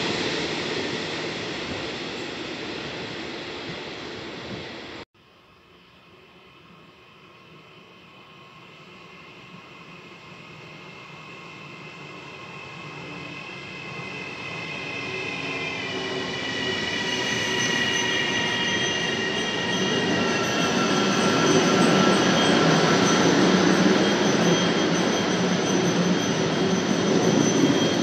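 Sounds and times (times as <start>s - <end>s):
high squeal sliding down: 12.5s - 28.0s.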